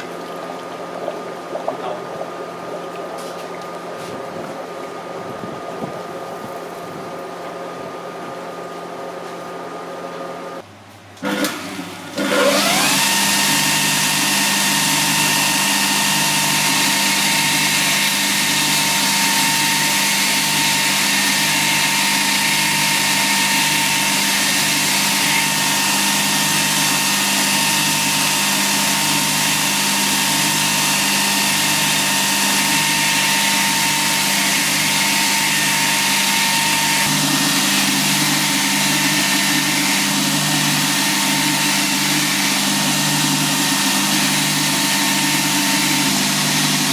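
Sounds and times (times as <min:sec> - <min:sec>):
electric motor whine: 0:11.2 - 0:46.9.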